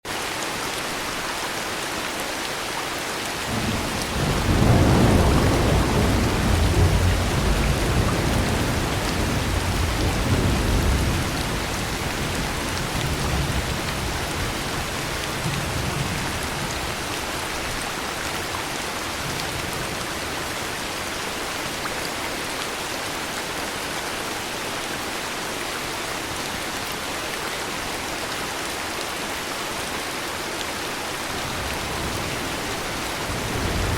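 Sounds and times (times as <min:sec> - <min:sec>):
heavy rain falling: 0:00.1 - 0:33.9
thunder rumbling: 0:03.5 - 0:17.1, 0:31.4 - 0:33.9.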